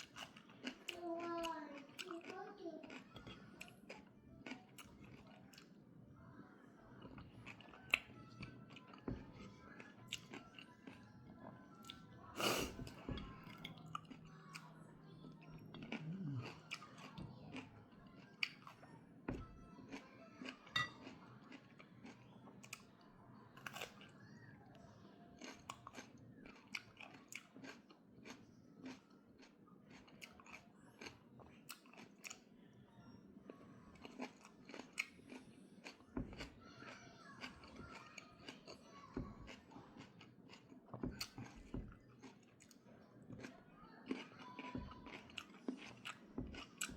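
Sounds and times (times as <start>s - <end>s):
crunchy chewing: 0.0s - 5.8s, 7.0s - 11.2s, 11.8s - 23.0s, 25.0s - 32.5s, 33.5s - 46.9s.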